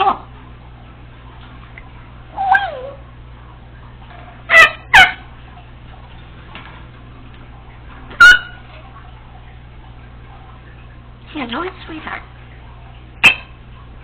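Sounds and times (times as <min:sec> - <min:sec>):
parrot calling: 0:04.5 - 0:05.3.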